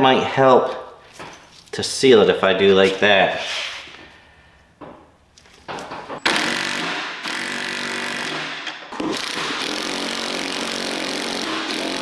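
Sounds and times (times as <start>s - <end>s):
power tool motor whine: 6.2s - 12.0s.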